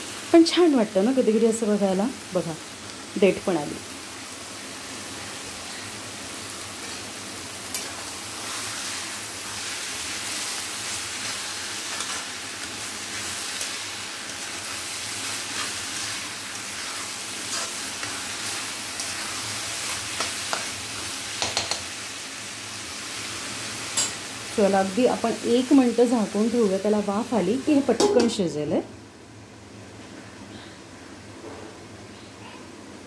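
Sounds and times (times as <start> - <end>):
vegetables sizzling in a pan: 0.0 - 30.2
spatula scraping and clacking on pan: 10.3 - 13.8, 15.4 - 21.9.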